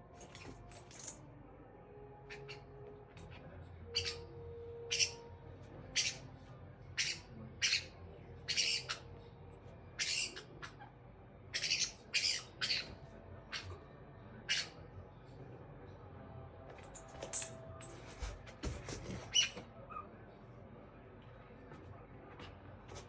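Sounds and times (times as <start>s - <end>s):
parrot squawking: 2.3s - 2.7s, 3.9s - 5.2s, 5.9s - 6.2s, 7.0s - 9.1s, 10.0s - 13.7s, 14.5s - 14.8s, 19.3s - 20.1s.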